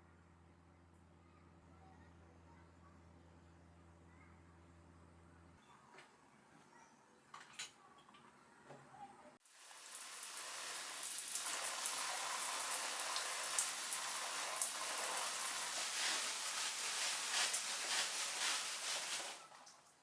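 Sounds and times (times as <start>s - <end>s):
steady rain falling: 9.6s - 19.6s.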